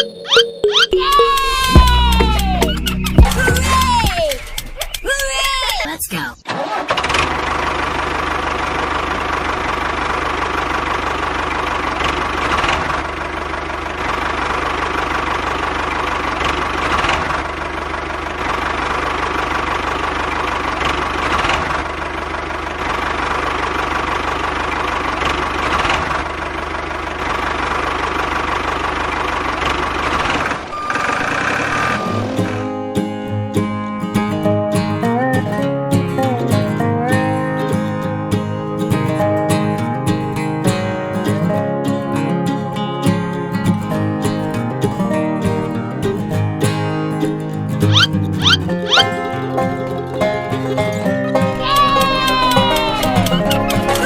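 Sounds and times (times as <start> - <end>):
engine idling with knocking: 7.2 - 30.7.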